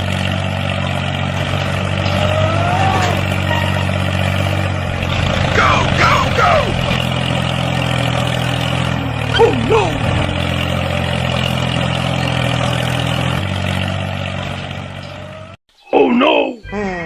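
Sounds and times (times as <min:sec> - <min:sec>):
high rising and falling calls: 0:05.3 - 0:13.3.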